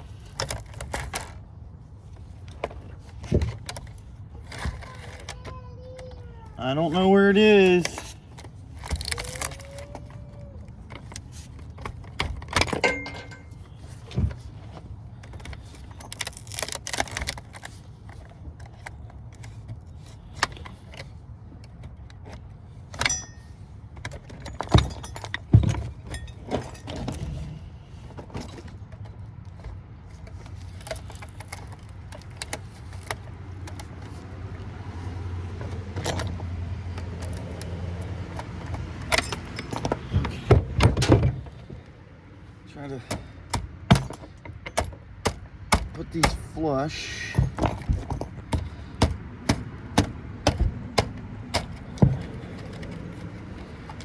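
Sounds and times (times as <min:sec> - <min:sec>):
metallic clinks of tools and wire: 0:03.5 - 0:14.2, 0:22.9 - 0:27.5, 0:35.6 - 0:40.5.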